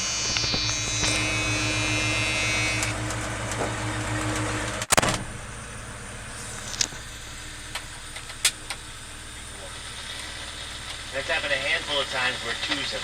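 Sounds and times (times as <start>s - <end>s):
high whine: 0.0s - 13.0s
truck engine idling: 0.0s - 13.0s
loud thump: 4.9s - 5.5s.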